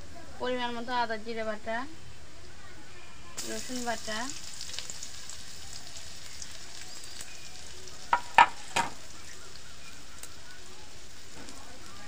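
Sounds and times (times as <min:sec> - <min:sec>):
onions sizzling in oil: 0:03.3 - 0:12.0
utensil knocking on pan: 0:08.1 - 0:09.0.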